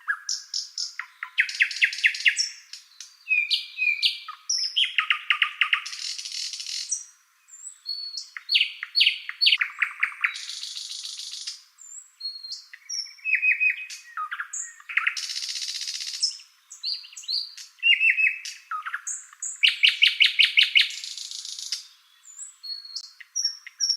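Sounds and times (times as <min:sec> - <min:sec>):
songbird singing trills: 0:00.0 - 0:23.9.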